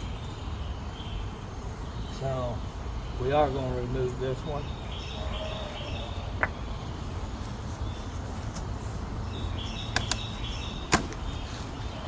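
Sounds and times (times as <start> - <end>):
birds chirping: 0.0 - 12.0
sharp clicks: 9.9 - 10.3.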